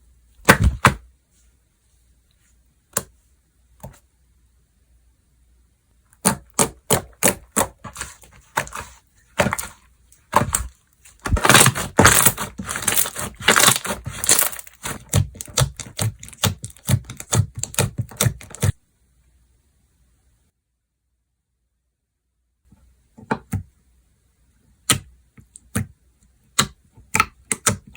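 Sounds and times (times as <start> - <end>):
slime clicking and crackling: 6.2 - 9.7, 10.3 - 18.8.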